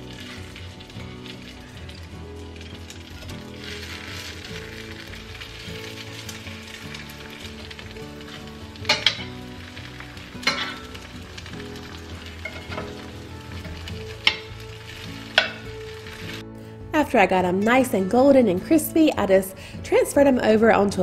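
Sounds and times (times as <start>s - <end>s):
chicken patties sizzling in oil: 0.0s - 16.4s
metal spatula clinking on pan: 8.9s - 9.4s, 10.4s - 10.9s, 12.4s - 13.0s, 15.3s - 15.7s.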